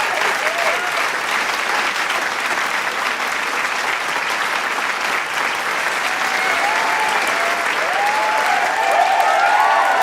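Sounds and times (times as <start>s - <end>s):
shouts: 0.0s - 1.0s, 6.1s - 10.0s
crowd applauding and cheering: 0.0s - 10.0s.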